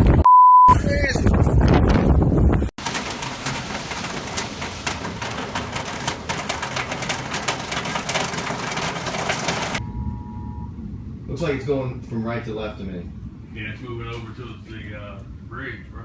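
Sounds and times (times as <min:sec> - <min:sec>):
storm wind: 0:00.0 - 0:16.0
fast crackle: 0:02.8 - 0:09.8
faint steady tone: 0:09.8 - 0:11.2.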